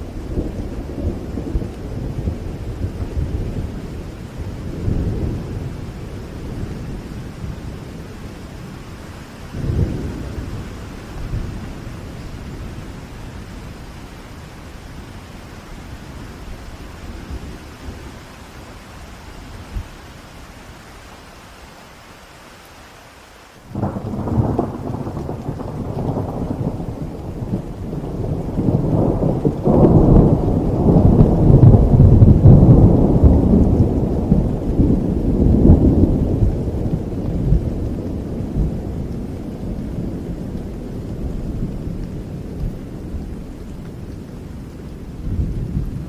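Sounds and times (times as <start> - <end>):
rolling thunder: 0.0 - 13.9, 23.7 - 46.0
steady rain: 0.0 - 46.0.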